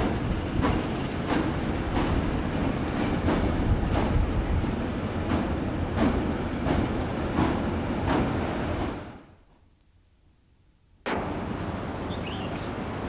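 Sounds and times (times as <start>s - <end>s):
steady wind-like noise: 0.0s - 9.3s, 11.1s - 13.0s
train running on rails: 0.0s - 9.4s, 11.1s - 13.0s
wheels clicking over rail joints: 11.1s - 13.0s.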